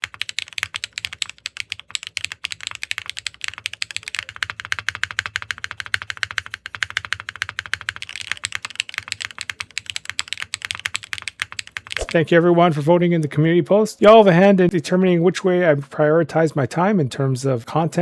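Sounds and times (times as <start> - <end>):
fast mechanical keyboard typing: 0.0 - 12.2.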